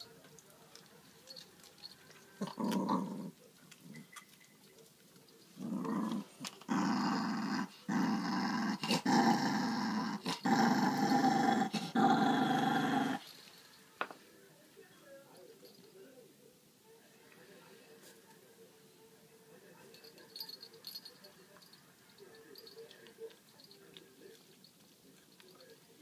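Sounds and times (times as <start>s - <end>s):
dog growling: 2.4s - 4.0s, 5.6s - 13.3s.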